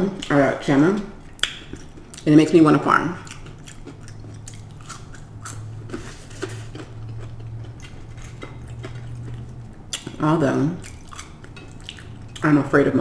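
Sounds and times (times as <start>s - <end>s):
steady low hum: 0.0s - 13.0s
person chewing crispy fries: 1.2s - 2.3s, 3.2s - 12.5s
wet mouth clicks: 1.4s - 1.8s.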